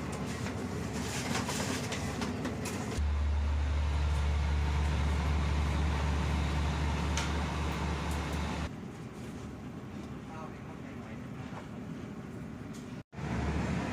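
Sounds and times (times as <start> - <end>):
loud low train drone: 3.0 - 8.7, 13.2 - 13.9.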